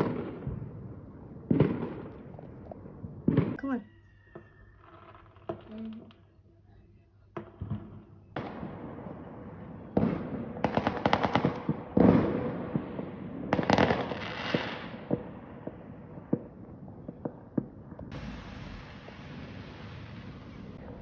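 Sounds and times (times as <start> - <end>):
fireworks bangs: 0.0 - 6.2, 7.3 - 21.0
fireworks hissing and crackling: 9.9 - 16.4, 18.0 - 21.0.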